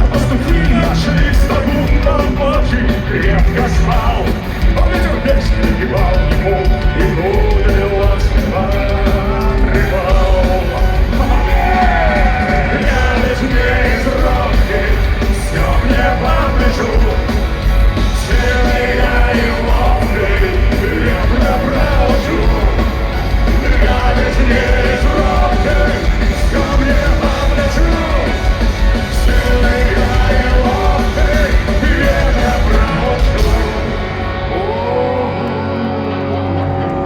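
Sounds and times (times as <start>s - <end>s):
drums: 0.0s - 37.0s
live punk rock band: 0.0s - 37.0s
person singing or shouting: 5.6s - 14.8s, 29.2s - 37.0s.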